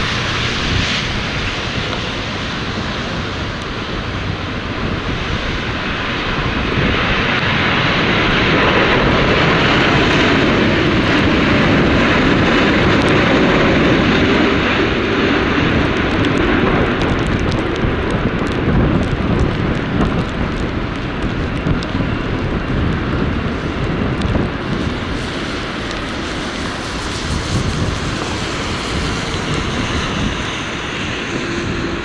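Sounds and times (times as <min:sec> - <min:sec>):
jet airliner passing low: 0:00.0 - 0:32.0
wind buffeting the microphone: 0:00.0 - 0:32.0.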